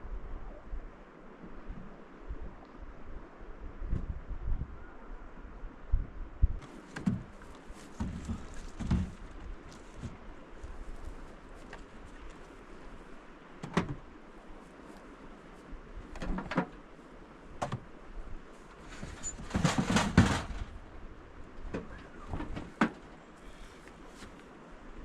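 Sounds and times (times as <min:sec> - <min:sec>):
low steady rumble: 0:00.0 - 0:25.0
objects clattering: 0:18.8 - 0:20.8.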